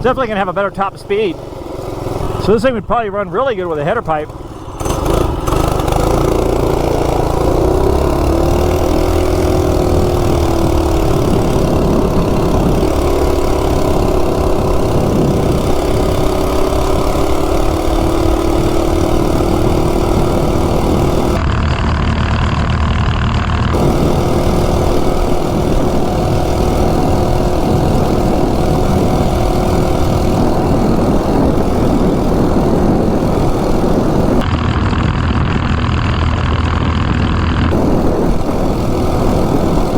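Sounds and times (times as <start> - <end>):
small engine revving high: 0.0 - 36.0, 36.6 - 39.9
wind rumbling on microphone: 4.2 - 39.9.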